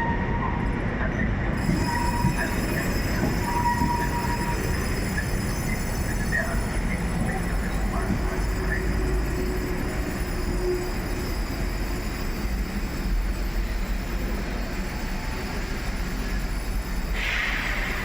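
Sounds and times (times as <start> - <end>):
train rumbling past: 0.0 - 18.0.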